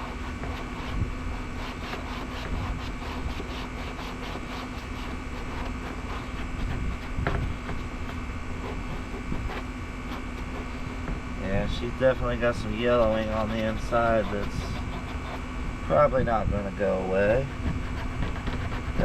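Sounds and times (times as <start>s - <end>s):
scrubbing on plastic hull: 0.0s - 11.0s
air conditioner hum: 0.0s - 19.0s.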